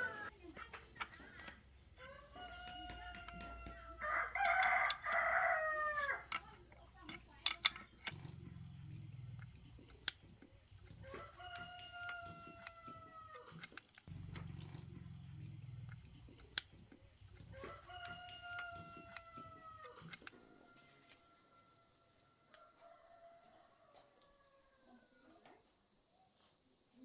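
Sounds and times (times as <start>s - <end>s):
rooster crowing: 0.0s - 0.3s, 1.9s - 6.5s, 10.9s - 16.3s, 17.3s - 25.4s.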